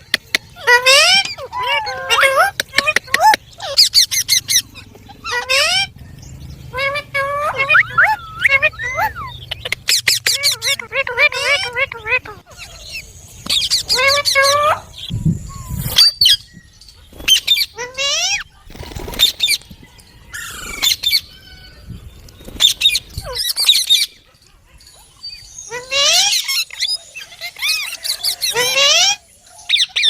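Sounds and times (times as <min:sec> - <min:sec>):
parakeets squawking and screeching: 0:00.4 - 0:06.0, 0:06.6 - 0:24.3, 0:24.9 - 0:30.0.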